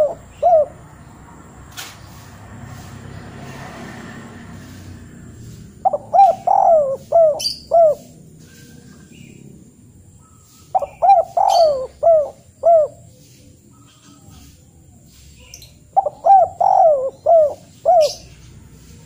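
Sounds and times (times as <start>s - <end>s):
bird calling: 0.0s - 1.2s, 5.5s - 19.0s.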